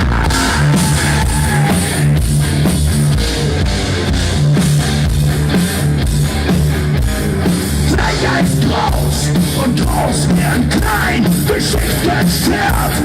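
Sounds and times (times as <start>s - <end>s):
bass guitar: 0.0s - 13.0s
drum kit: 0.0s - 13.0s
electric guitar: 0.0s - 13.0s.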